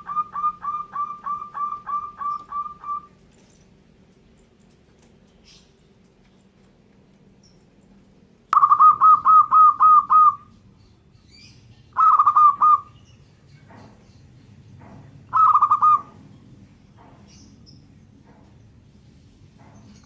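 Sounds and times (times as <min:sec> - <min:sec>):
dove cooing: 0:00.0 - 0:03.2, 0:08.6 - 0:10.6, 0:12.0 - 0:13.0, 0:15.3 - 0:16.2.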